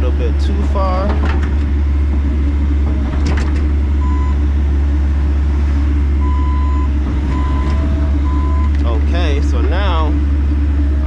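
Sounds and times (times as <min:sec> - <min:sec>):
excavator diesel engine running: 0:00.0 - 0:11.0
backup alarm beeps: 0:04.0 - 0:04.4, 0:06.2 - 0:08.8.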